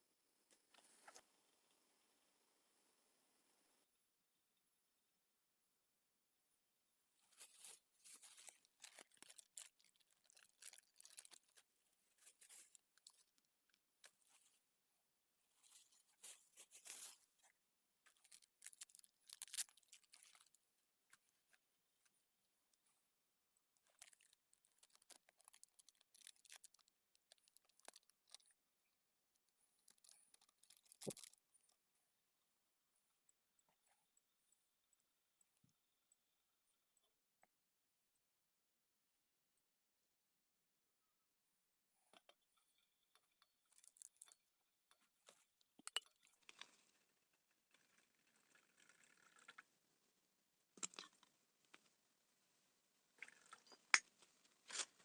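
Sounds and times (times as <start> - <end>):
rustling and tearing: 7.3 - 13.4, 15.6 - 17.3.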